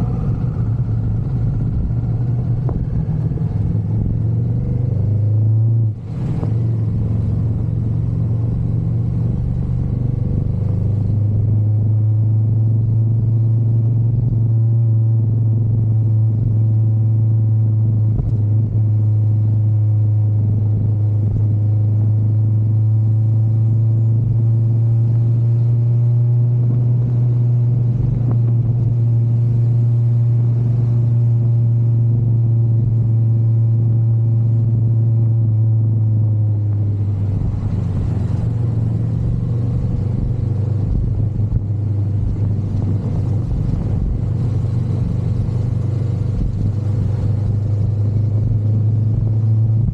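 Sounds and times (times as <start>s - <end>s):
motorcycle engine droning: 0.0s - 49.9s.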